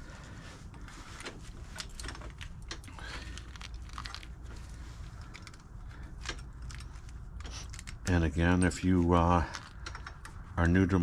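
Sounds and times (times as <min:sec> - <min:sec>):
metal clicks and clinks: 0:05.2 - 0:10.4.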